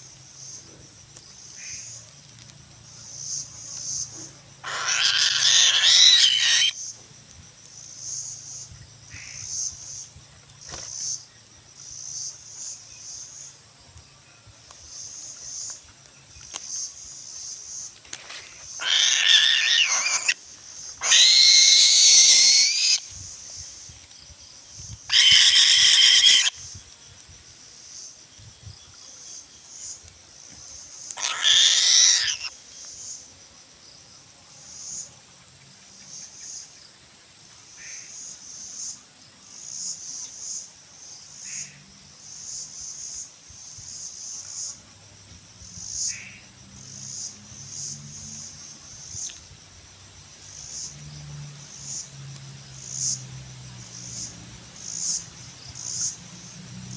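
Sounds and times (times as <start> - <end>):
insects chirping: 0.0 - 56.9
eagle screeching: 4.6 - 6.8, 18.8 - 20.4, 21.0 - 23.0, 25.1 - 26.6, 31.2 - 32.5.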